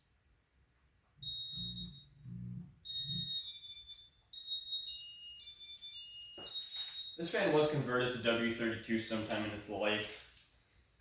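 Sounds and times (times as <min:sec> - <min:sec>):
high electronic beeping tones: 0:01.2 - 0:07.3.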